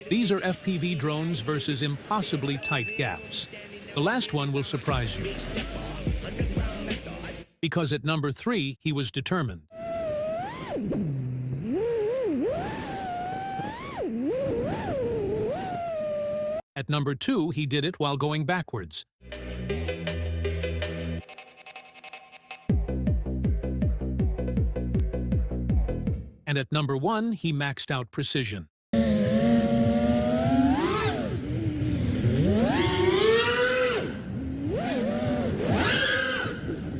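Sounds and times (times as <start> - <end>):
drone motors whining: 9.8 - 16.6, 29.0 - 36.9.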